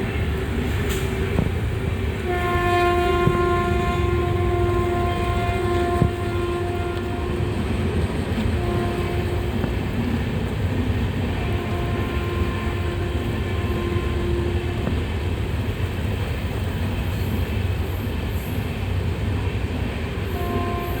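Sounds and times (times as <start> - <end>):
train horn: 0.0 - 10.3, 11.0 - 15.4, 20.1 - 21.0
train rumbling: 0.0 - 21.0.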